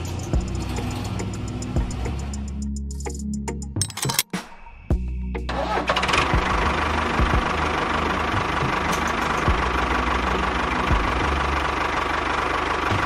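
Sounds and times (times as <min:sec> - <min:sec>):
tractor engine idling: 0:05.5 - 0:13.0.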